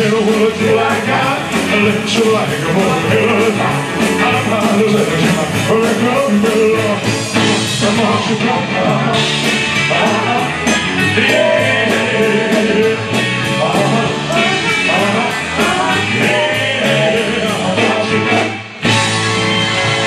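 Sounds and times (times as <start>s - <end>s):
rock band playing with singing: 0.0s - 20.0s.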